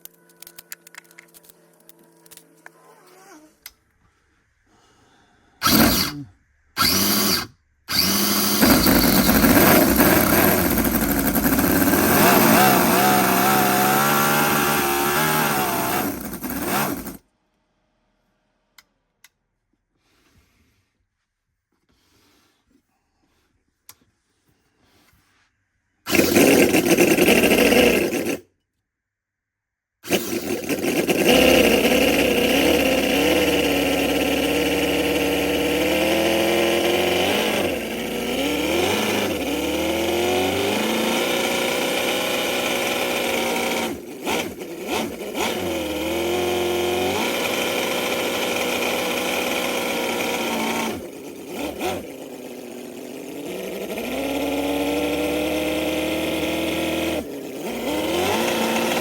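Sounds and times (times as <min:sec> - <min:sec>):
model engine revving: 0:05.6 - 0:17.2, 0:26.1 - 0:28.4, 0:30.0 - 0:59.0.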